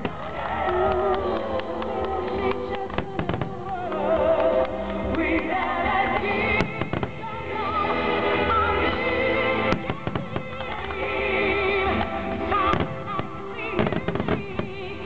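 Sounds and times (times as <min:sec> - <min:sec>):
fireworks bursting and crackling: 0:00.0 - 0:15.0
song over loudspeakers: 0:00.0 - 0:15.0.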